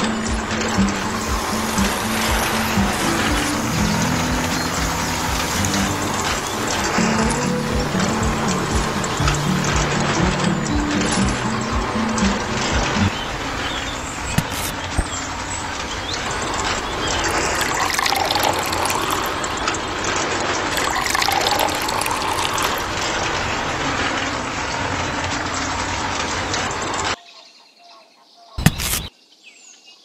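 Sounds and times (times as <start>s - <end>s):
water pouring into plastic drum: 0.1s - 12.0s, 14.4s - 26.3s.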